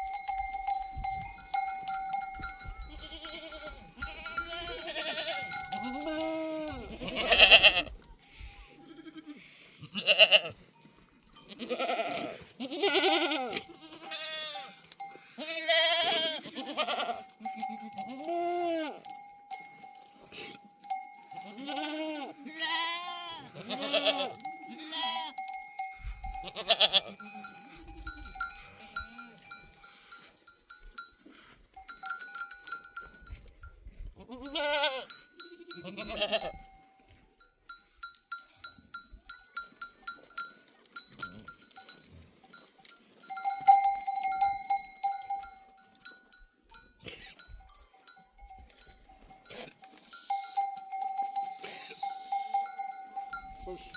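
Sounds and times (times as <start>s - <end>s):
livestock bells clinking: 0.0s - 9.3s, 10.5s - 53.9s
goats bleating: 2.8s - 10.6s, 11.4s - 19.1s, 20.2s - 25.6s, 26.3s - 29.6s, 34.2s - 36.6s.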